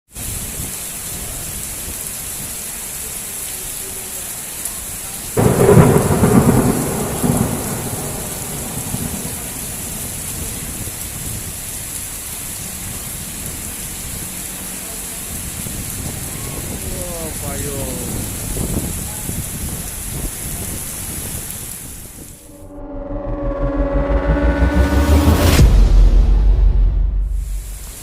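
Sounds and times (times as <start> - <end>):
heavy rain falling: 0.1 - 22.7, 23.6 - 28.0
loud thunderclap rumbling: 5.4 - 11.6.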